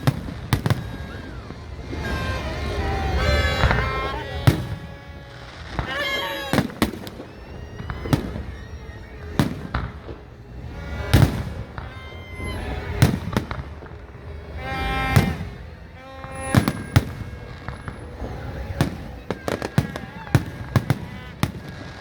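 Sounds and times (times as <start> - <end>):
fireworks bangs and booms: 0.0 - 22.0.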